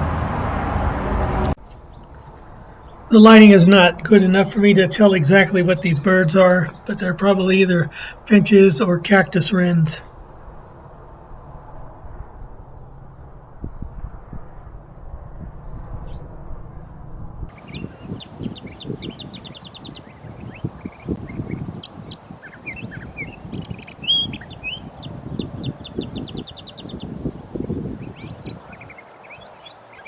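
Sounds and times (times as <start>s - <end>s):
low rumbling noise: 0.0s - 28.9s
small birds calling: 17.5s - 30.0s.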